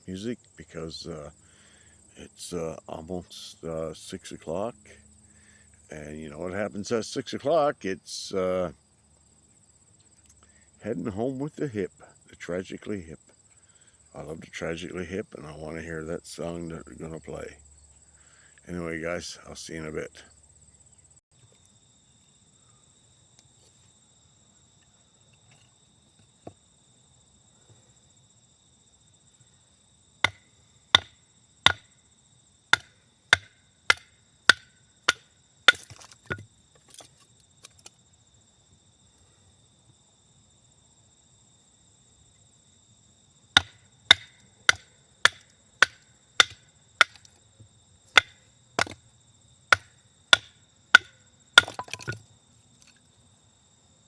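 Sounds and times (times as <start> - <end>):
insect trill: 0.0 - 54.0
axe chopping wood: 30.2 - 31.9, 32.7 - 37.2, 43.6 - 47.3, 48.1 - 49.0, 49.7 - 52.2.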